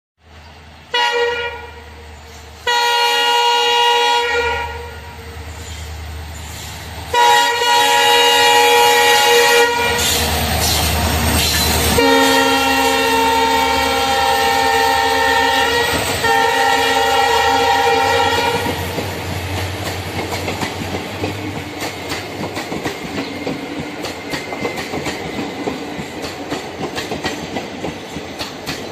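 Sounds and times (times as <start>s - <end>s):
train horn blasts: 0.9s - 2.0s, 2.6s - 5.4s, 7.1s - 10.3s, 11.9s - 18.9s
train wheels clattering: 9.9s - 12.6s, 15.5s - 28.9s.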